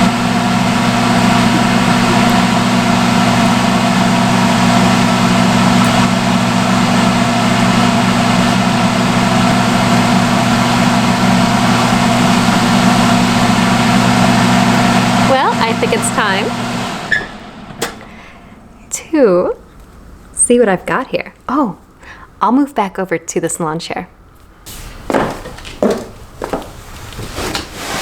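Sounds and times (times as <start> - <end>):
hood hair dryer humming: 0.0 - 18.9, 24.7 - 26.7.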